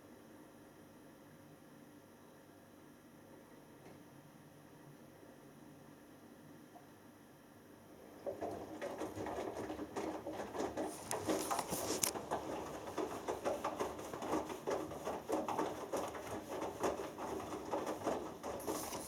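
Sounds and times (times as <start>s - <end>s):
laundry and water sloshing: 8.1s - 19.0s
washing machine drum turning: 8.2s - 19.0s.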